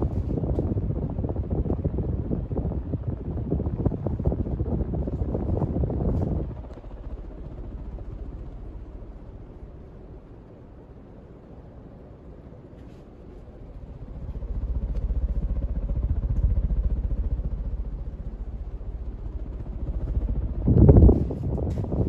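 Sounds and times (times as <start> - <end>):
ceiling fan whooshing: 0.0 - 22.0.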